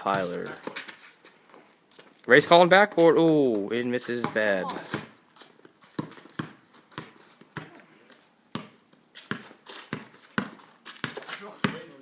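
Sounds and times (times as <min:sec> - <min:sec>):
basketball bouncing: 0:04.2 - 0:05.1, 0:06.0 - 0:07.8, 0:08.5 - 0:11.9.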